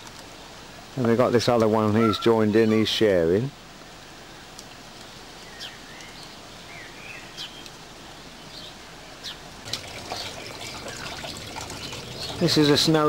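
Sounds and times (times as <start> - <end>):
outdoor hiss: 0.0 - 13.0
small birds twittering: 1.7 - 3.0, 5.0 - 13.0.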